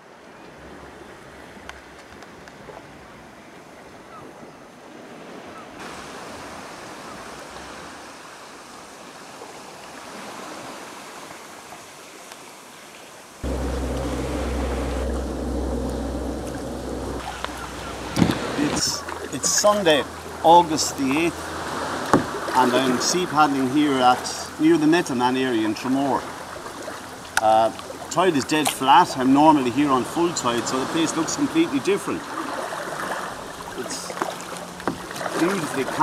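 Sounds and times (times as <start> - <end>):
heavy low rumble: 13.4 - 21.8
sea water lapping: 13.4 - 36.0.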